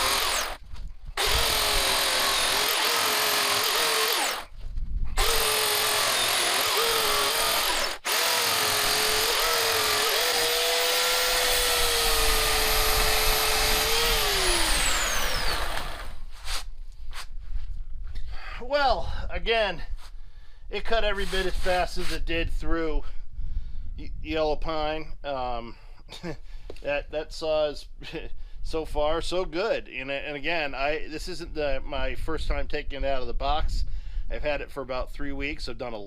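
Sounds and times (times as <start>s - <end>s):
electric chainsaw cutting wood: 0.0s - 0.6s, 1.2s - 4.6s, 5.2s - 16.3s.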